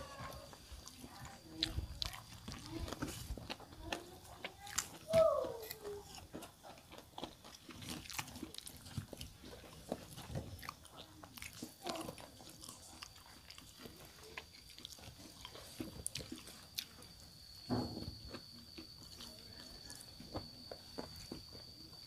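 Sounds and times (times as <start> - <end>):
chewing and crunching: 0.0 - 22.0.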